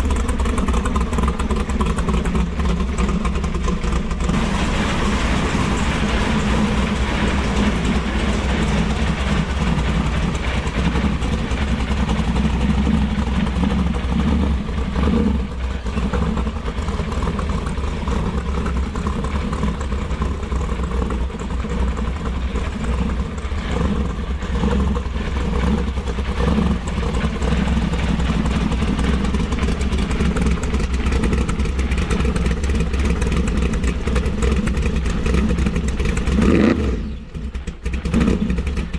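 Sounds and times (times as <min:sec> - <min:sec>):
vee eight engine idling: 0:00.0 - 0:38.9.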